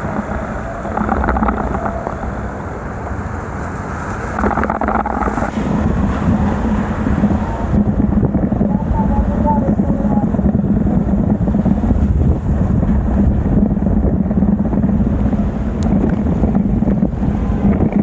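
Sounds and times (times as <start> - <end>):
tyres on wet road: 0.0 - 18.0
wind on microphone: 0.0 - 18.0.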